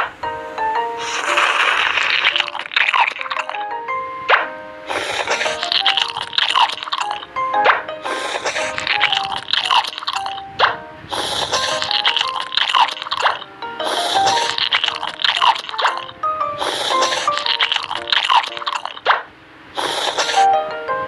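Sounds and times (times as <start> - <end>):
background music: 0.0 - 18.9, 20.3 - 21.0
crunching bites into candy: 1.0 - 3.6, 4.9 - 7.3, 8.1 - 10.4, 11.1 - 19.0, 19.8 - 20.4.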